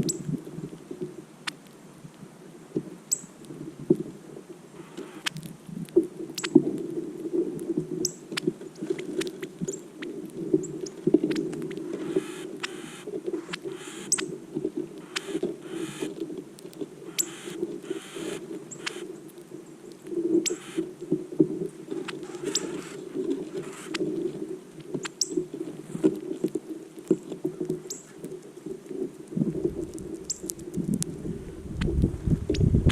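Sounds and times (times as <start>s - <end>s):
bird chip notes: 17.1s - 19.0s
steady low rumble: 29.4s - 32.9s.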